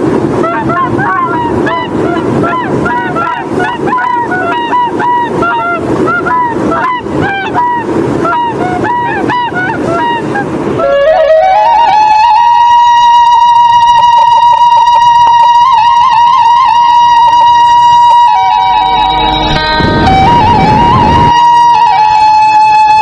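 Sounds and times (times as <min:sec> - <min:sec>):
waterbirds calling: 0:00.0 - 0:21.4
rush of water or wind: 0:00.0 - 0:23.0
music with rising tone: 0:17.0 - 0:22.3.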